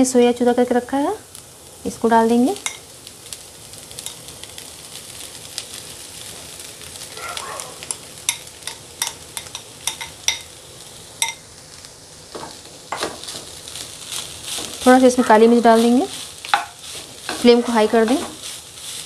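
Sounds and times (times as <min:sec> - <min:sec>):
food sizzling in oil: 0:00.0 - 0:19.0
spoon tapping glass bowl: 0:08.3 - 0:10.5, 0:11.2 - 0:11.4
spatula stirring in pan: 0:12.3 - 0:19.0.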